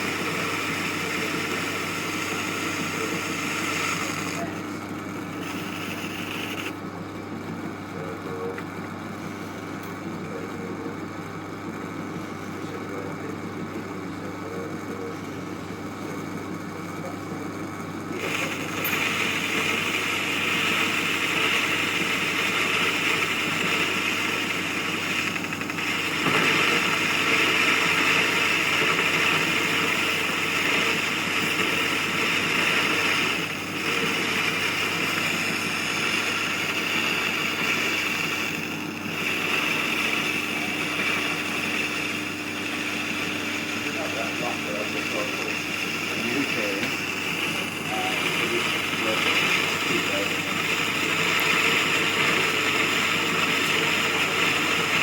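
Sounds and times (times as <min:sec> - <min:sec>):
hissing metal cutting: 0:00.0 - 0:06.8, 0:18.1 - 0:55.0
lathe motor hum: 0:00.0 - 0:55.0.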